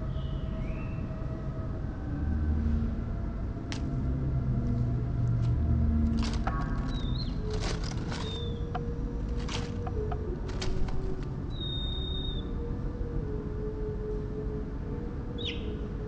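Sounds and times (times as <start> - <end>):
low background rumble: 0.0 - 16.0
scratchy nestling calls: 6.2 - 8.8.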